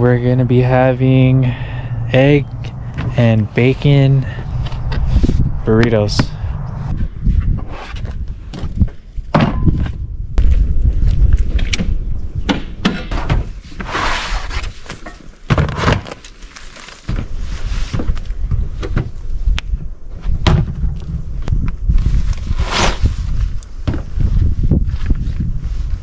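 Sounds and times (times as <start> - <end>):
thuds and knocks of gear: 23.8 - 24.1.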